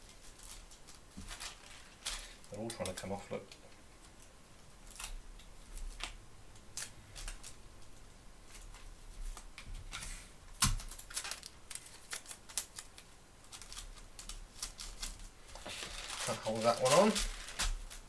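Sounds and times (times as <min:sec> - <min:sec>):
paper pages and tape crackling: 0:00.0 - 0:03.6, 0:08.5 - 0:18.0.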